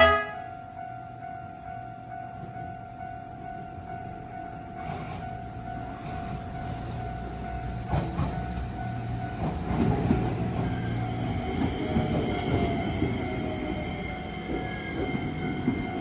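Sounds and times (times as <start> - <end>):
train wheels knocking over rail joints: 7.8 - 16.0.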